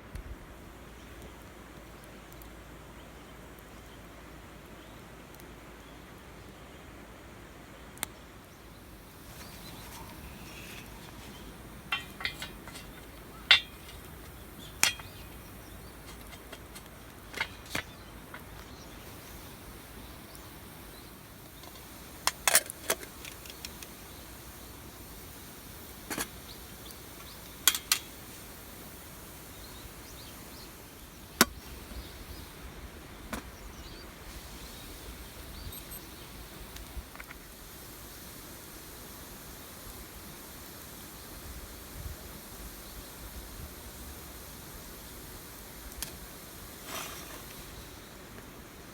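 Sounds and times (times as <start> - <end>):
faint outdoor background: 0.0 - 48.9
sharp clicks and knocks: 9.3 - 18.7.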